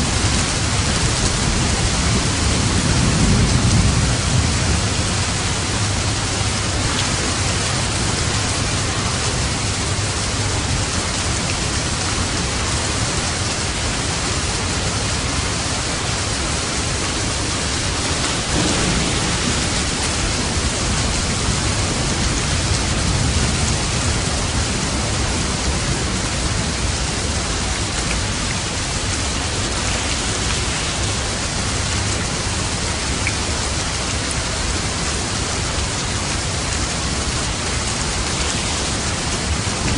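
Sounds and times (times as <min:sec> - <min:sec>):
heavy rain hiss: 0:00.0 - 0:39.9
low rumble: 0:17.9 - 0:23.6.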